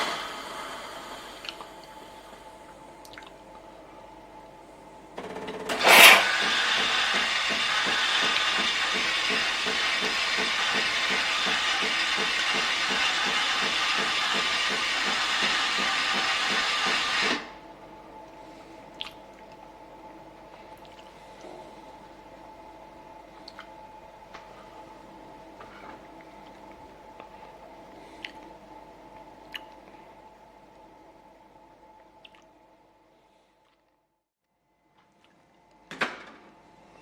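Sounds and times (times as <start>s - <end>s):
steam hissing: 0.0s - 2.6s, 5.6s - 17.6s
pump pulsing: 0.0s - 3.2s, 5.2s - 24.0s
coffee machine sputtering: 5.2s - 17.6s.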